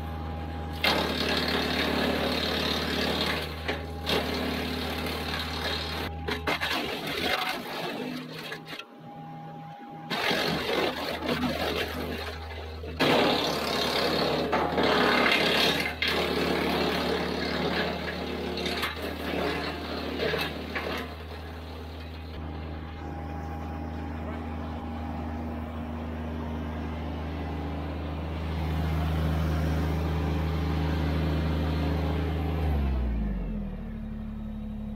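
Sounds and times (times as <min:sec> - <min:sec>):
engine running: 0:00.0 - 0:34.9.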